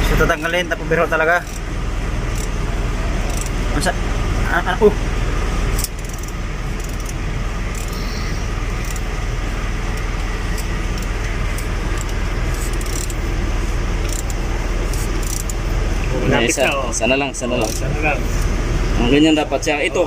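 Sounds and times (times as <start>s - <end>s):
road traffic rumble: 0.0s - 20.0s
hand tools clicking on metal: 9.9s - 13.2s, 14.0s - 15.6s.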